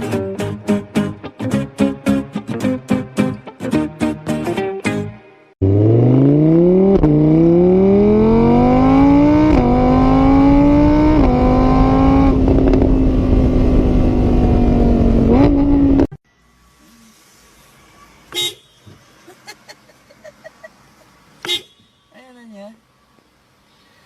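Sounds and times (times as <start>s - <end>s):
car engine accelerating: 5.6s - 16.2s.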